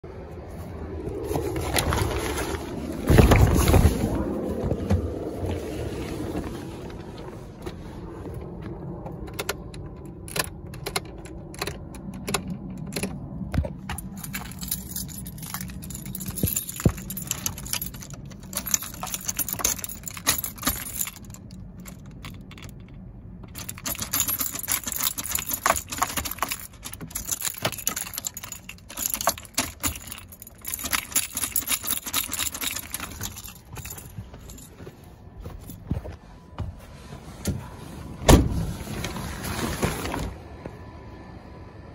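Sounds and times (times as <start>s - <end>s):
keys jangling: 9.3s - 34.9s.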